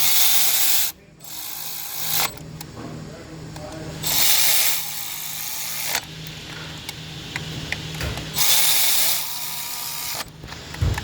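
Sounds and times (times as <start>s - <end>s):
power tool bursts: 0.0s - 2.4s, 4.0s - 11.0s
thump: 10.8s - 11.0s.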